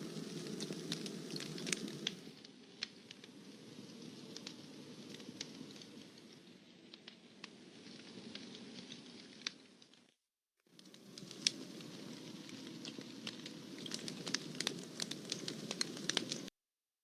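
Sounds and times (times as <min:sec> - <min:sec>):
burning wood popping and snapping: 0:00.0 - 0:03.4, 0:10.8 - 0:16.5
low rustle of flames: 0:00.0 - 0:16.5.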